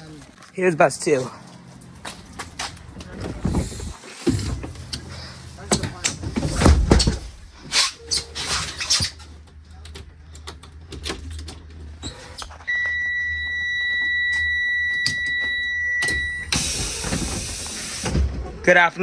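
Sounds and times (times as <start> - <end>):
steady high warning buzzer: 12.6 - 17.9.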